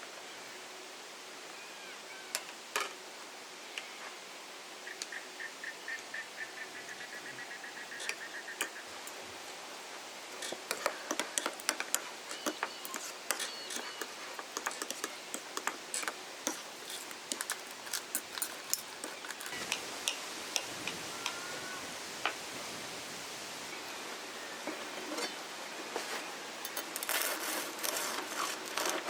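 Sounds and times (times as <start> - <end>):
bird chirping: 4.8 - 9.0, 10.8 - 15.2, 16.5 - 21.9
campfire crackling: 8.2 - 24.2.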